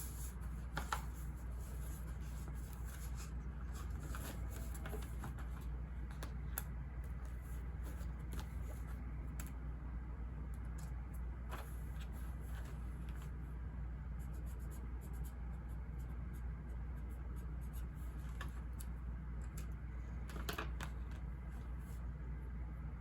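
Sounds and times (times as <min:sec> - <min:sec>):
low white-noise rumble: 0:00.0 - 0:23.0.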